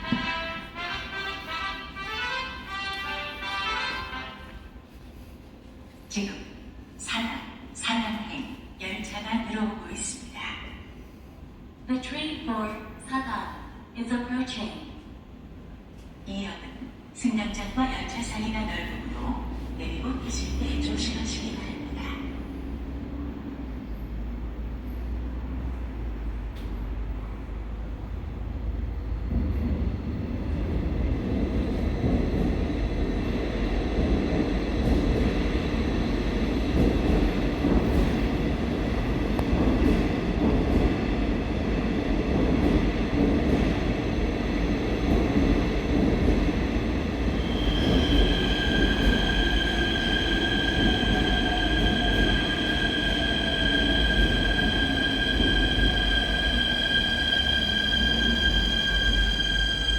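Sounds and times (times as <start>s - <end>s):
electric train rumbling: 16.9s - 59.9s
high-pitched squeal: 47.4s - 59.9s.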